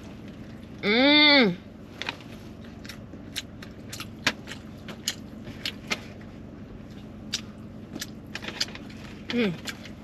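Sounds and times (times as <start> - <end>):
chewing food: 2.0 - 10.0.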